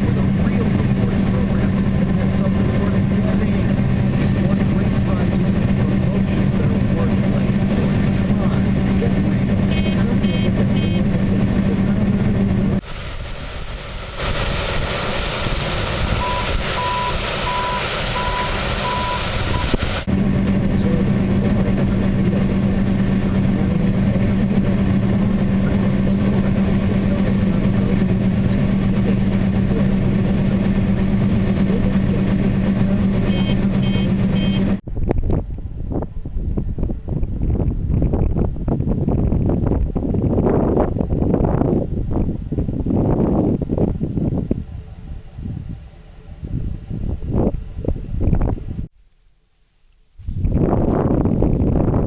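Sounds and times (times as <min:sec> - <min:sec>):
machinery engine droning: 0:00.0 - 0:48.9
short beeps: 0:09.7 - 0:11.1, 0:16.2 - 0:19.8, 0:33.2 - 0:34.8
wind buffeting microphone: 0:34.8 - 0:48.9, 0:50.2 - 0:52.0.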